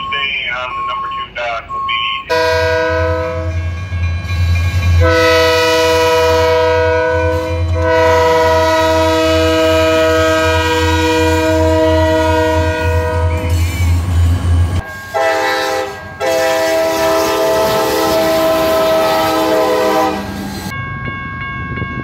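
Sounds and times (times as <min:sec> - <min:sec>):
locomotive air horn blasts: 0:02.3 - 0:03.6, 0:05.0 - 0:13.8, 0:15.1 - 0:20.3.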